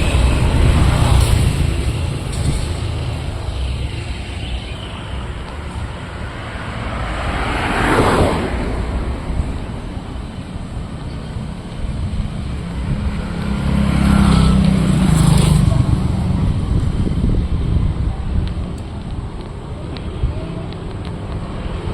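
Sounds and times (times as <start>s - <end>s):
cars and motorcycles rumbling: 0.0s - 21.9s.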